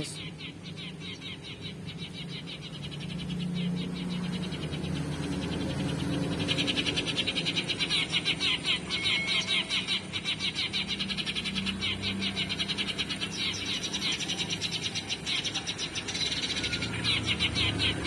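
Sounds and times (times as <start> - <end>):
sparrow chirping: 0.0 - 18.0.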